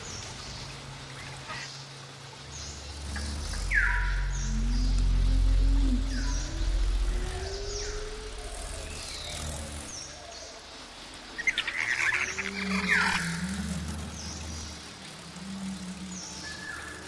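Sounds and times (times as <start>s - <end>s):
birds chirping: 0.0s - 17.0s
low rumble: 2.8s - 10.2s.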